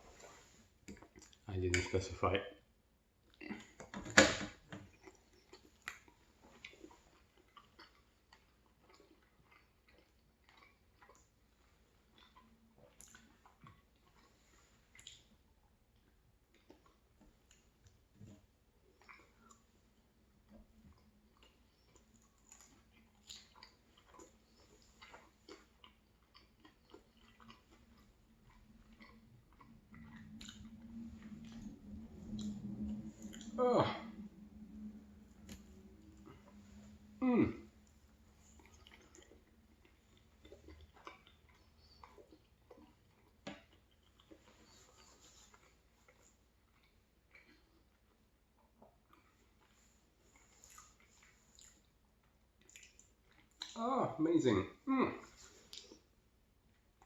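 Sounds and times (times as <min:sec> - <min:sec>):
mouth chewing clicks and smacks: 0:00.8 - 0:02.0, 0:04.8 - 0:18.1, 0:18.8 - 0:33.6, 0:37.8 - 0:53.8, 0:55.2 - 0:57.0
wet mouth clicks and smacks: 0:12.1 - 0:15.4, 0:21.4 - 0:33.6, 0:52.6 - 0:53.8
low hum: 0:29.8 - 0:39.0.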